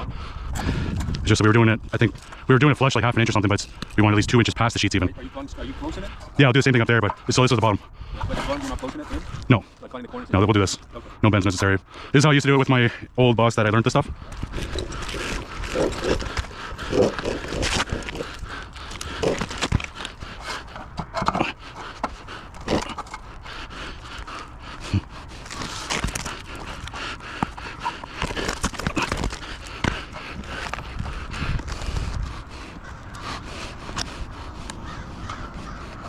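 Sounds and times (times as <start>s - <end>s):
rustling background: 0.6s - 36.0s.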